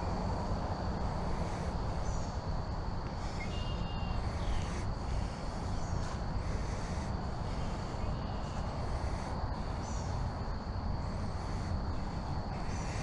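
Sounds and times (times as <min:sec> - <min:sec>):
low rumble of outdoor background: 0:00.0 - 0:13.0.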